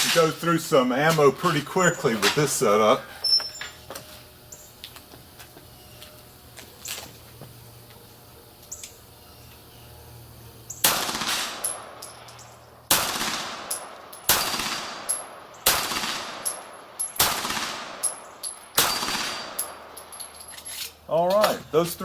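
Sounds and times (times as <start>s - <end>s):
pistol shots: 10.8s - 12.2s, 12.9s - 20.0s.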